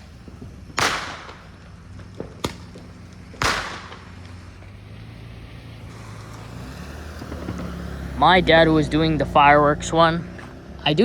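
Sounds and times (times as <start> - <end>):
firework bangs: 0.0 - 6.6
small sharp pops: 0.3 - 4.7.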